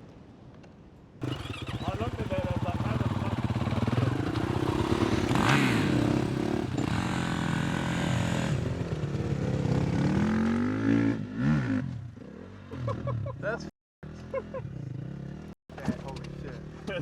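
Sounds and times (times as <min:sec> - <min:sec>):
dirt bike engine revving: 0:01.2 - 0:13.1.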